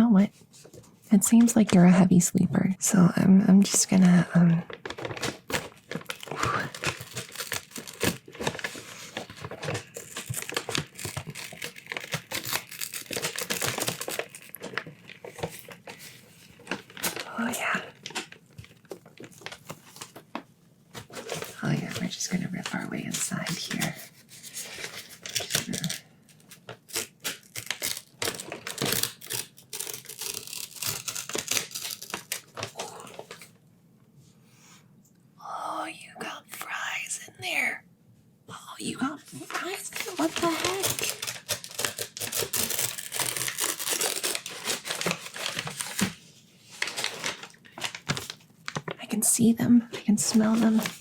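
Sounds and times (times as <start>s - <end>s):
paper bag crinkling and tearing: 3.8s - 20.3s, 21.0s - 33.5s, 39.2s - 49.0s, 50.2s - 51.0s.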